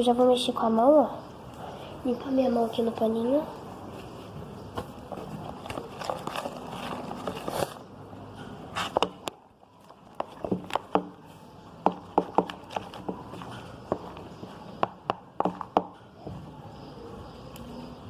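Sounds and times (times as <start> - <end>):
spoon stirring thick slime: 11.8 - 15.8.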